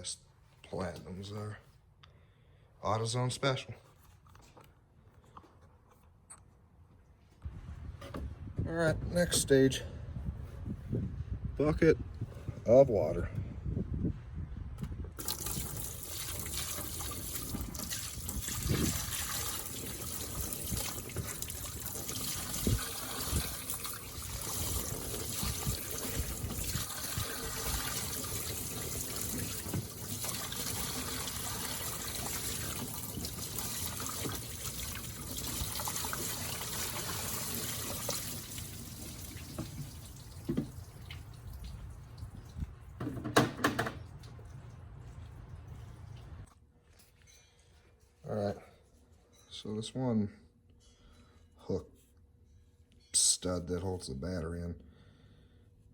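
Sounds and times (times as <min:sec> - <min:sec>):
water pouring and splashing: 0:15.2 - 0:46.5.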